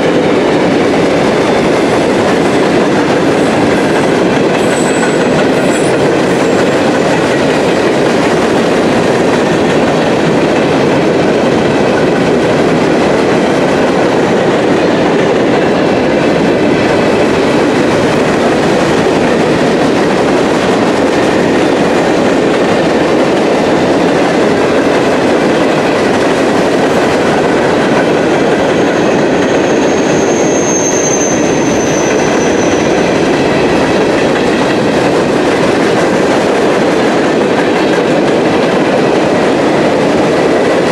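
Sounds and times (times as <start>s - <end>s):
train wheels clacking on rail: 0.0s - 40.9s
thin wheel squeal: 29.6s - 32.9s.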